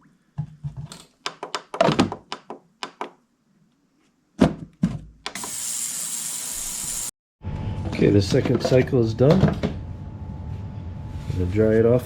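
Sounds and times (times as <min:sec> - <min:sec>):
ultrasonic cleaner high-pitched hiss: 0:05.4 - 0:07.1.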